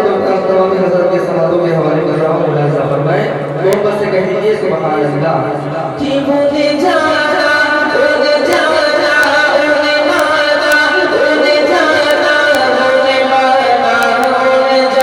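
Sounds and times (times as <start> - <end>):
men singing: 6.0 - 15.0.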